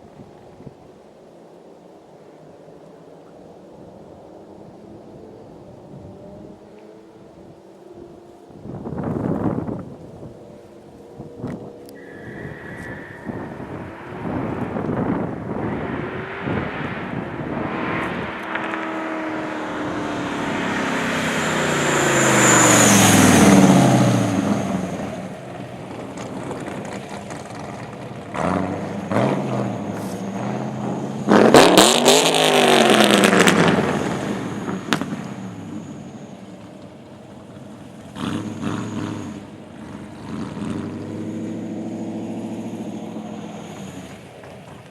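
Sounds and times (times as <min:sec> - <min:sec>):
car engine accelerating hard: 0:04.9 - 0:44.9.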